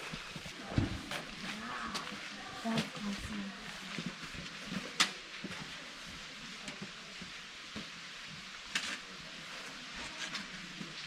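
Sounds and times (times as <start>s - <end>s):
footsteps on rocky trail: 0.0s - 5.8s
faint outdoor hiss: 0.0s - 11.0s.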